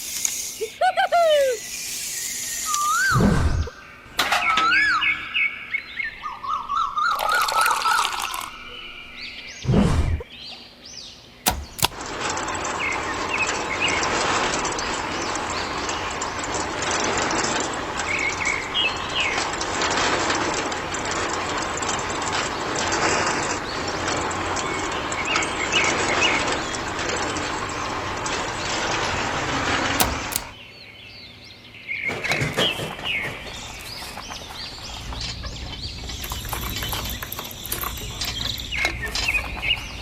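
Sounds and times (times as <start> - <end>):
click: 11.5 - 12.0, 30.0 - 30.5
knocks and swishes: 11.5 - 12.0.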